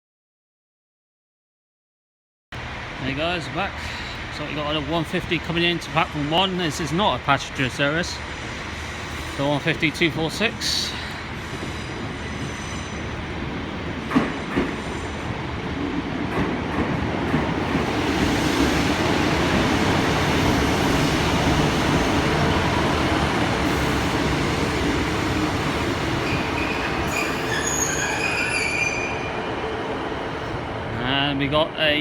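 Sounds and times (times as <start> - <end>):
train rumble: 2.6 - 32.0
high-pitched brake squeal: 11.4 - 13.1, 26.2 - 29.4.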